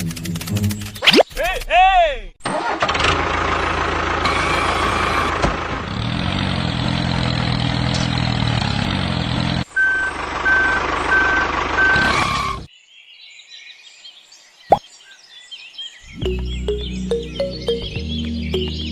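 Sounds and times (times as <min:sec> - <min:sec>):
vehicle engine rumbling: 0:03.0 - 0:12.7.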